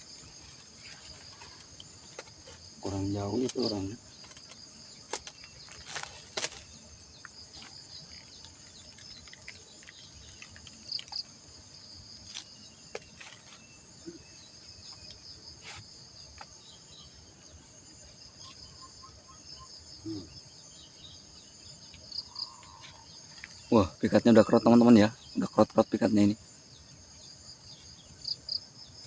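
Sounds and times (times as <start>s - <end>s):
high-pitched insect chorus: 0.0s - 29.0s
faint chirps: 11.9s - 15.8s, 18.4s - 26.9s.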